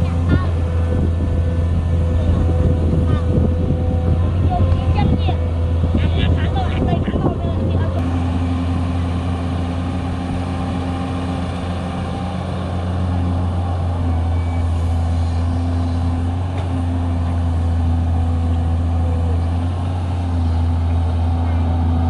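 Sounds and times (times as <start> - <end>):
heavy diesel engine droning: 0.0 - 22.0.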